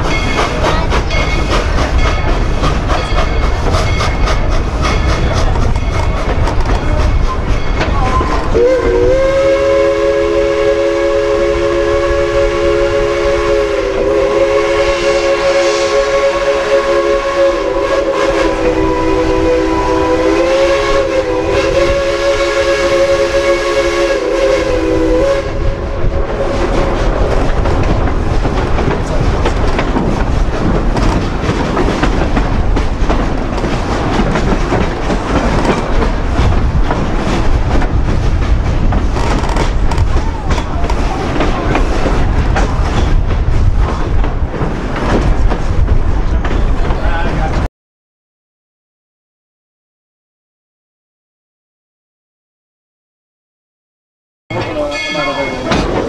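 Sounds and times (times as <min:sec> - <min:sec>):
train rumbling and clattering past: 0:00.0 - 0:15.9, 0:16.8 - 0:47.7, 0:54.5 - 0:56.0
steam locomotive chime whistle: 0:07.6 - 0:26.0, 0:54.5 - 0:56.0.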